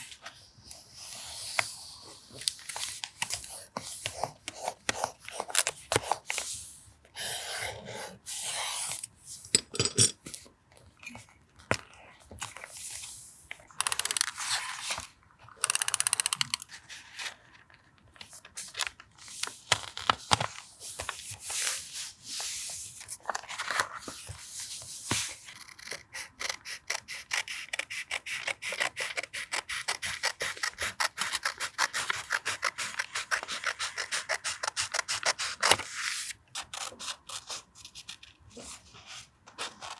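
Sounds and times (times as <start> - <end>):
fast mechanical clicks: 13.8 - 14.4, 15.6 - 16.6.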